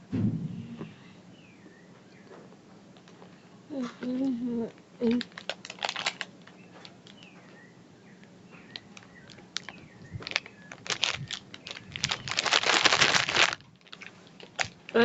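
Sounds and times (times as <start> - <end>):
crunchy snack being eaten: 5.0 - 7.2, 8.7 - 14.9
snack packet handled: 5.0 - 7.3, 8.7 - 14.8.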